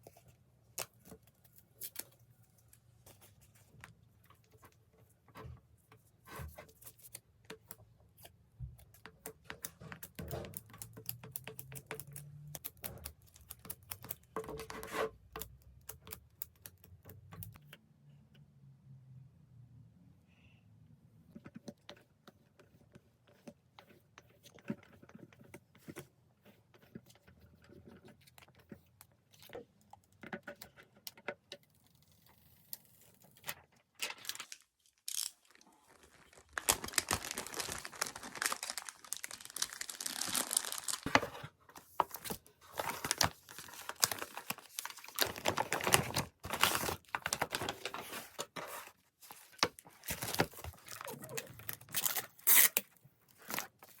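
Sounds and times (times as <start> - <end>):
wrapping crinkling and tearing: 34.0 - 41.2, 42.7 - 48.3, 49.3 - 54.0.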